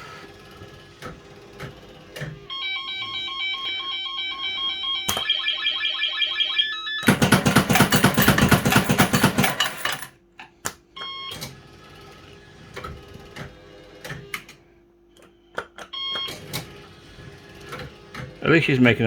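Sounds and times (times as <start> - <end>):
steady machine hum: 2.1 - 10.1
clicks: 2.2 - 5.5
short electronic beeps: 2.5 - 7.1
mechanical clattering: 7.0 - 10.1.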